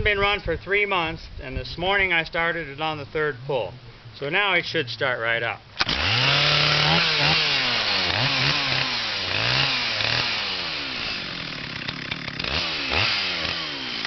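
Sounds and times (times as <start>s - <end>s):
chainsaw revving: 5.8s - 14.0s.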